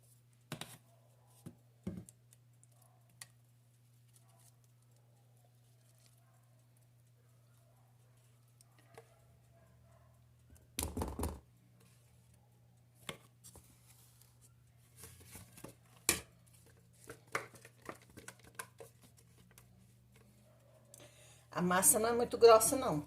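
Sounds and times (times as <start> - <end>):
parchment paper crinkling: 2.2 - 7.6, 13.0 - 20.4.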